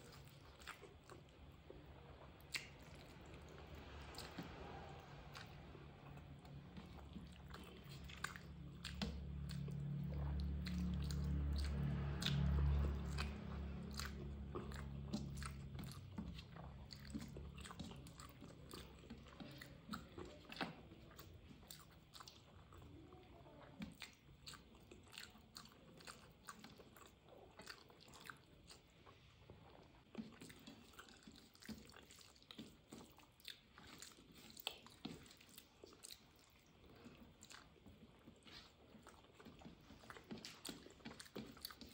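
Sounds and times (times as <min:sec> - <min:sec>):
person chewing with wet mouth clicks: 0:00.0 - 0:41.9
low hum: 0:01.6 - 0:18.9.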